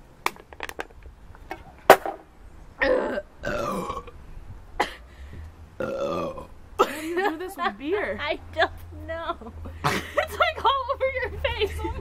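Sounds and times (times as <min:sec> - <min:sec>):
person burping: 0:02.8 - 0:04.2, 0:05.8 - 0:07.0.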